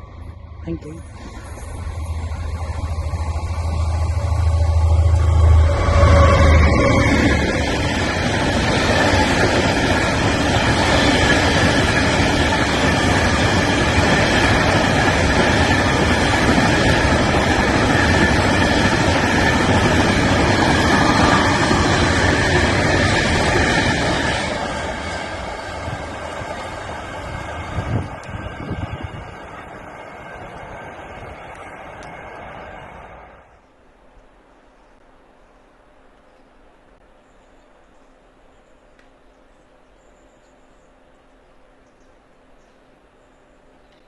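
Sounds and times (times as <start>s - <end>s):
train wagons rumbling and rattling: 0.0s - 33.1s.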